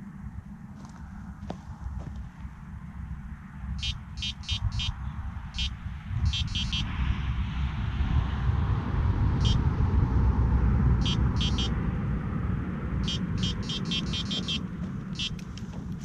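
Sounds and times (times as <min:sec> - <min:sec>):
steady low rumble: 0:00.0 - 0:16.0
electronic bite alarm beeping: 0:03.8 - 0:05.0, 0:05.6 - 0:07.0, 0:09.4 - 0:09.6, 0:11.0 - 0:11.8, 0:13.0 - 0:15.4.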